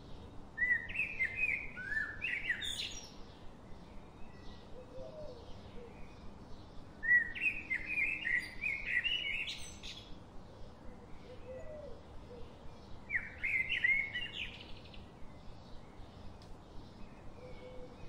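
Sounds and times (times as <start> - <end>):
bird singing: 0.0 - 18.0
steady background hiss: 0.0 - 18.0
faint bird calls: 4.6 - 6.3, 10.6 - 14.8, 17.2 - 18.0.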